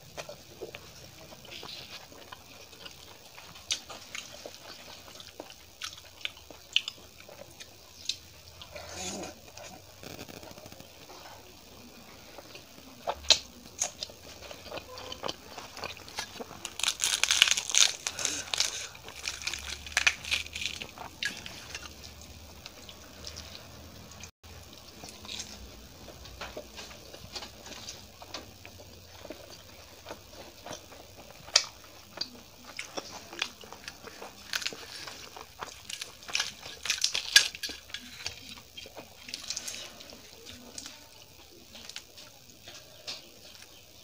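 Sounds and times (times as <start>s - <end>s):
chewing with crunches: 0.0s - 44.0s.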